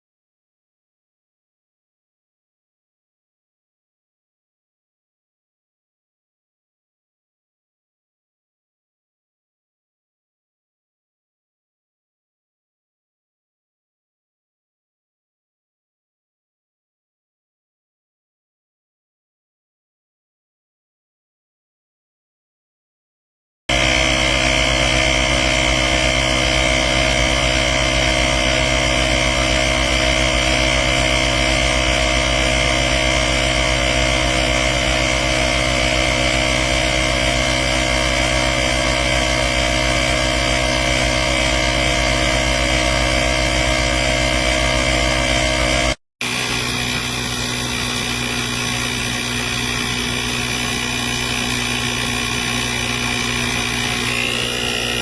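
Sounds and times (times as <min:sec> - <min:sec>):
air compressor buzzing whine: 0:23.7 - 0:55.0.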